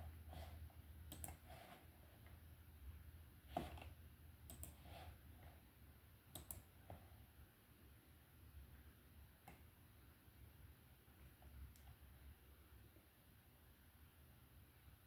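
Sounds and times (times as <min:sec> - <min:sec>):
low room hum: 0:00.0 - 0:15.0
faint sharp clicks: 0:06.3 - 0:06.6.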